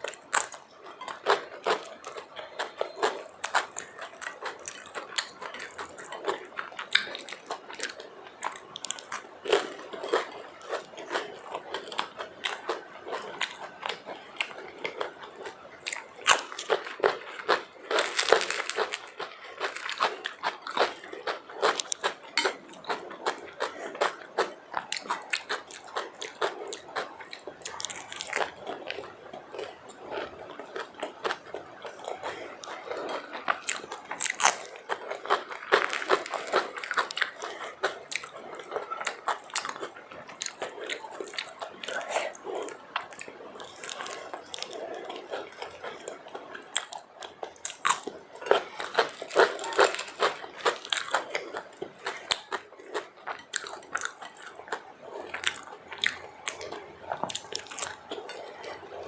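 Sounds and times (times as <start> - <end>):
person crunching and chewing food: 0.0 - 59.0.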